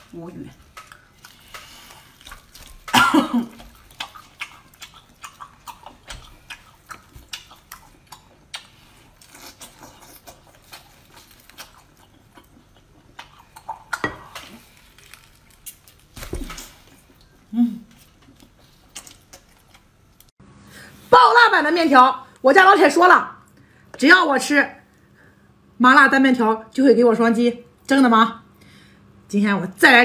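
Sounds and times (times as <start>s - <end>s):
person chewing wetly: 0.0s - 20.3s
person coughing: 2.9s - 3.6s.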